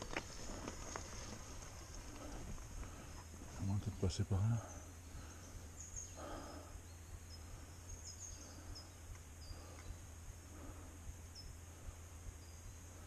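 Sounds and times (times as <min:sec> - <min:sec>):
soft rustle: 0:00.0 - 0:04.0
small birds chirping: 0:00.0 - 0:13.0.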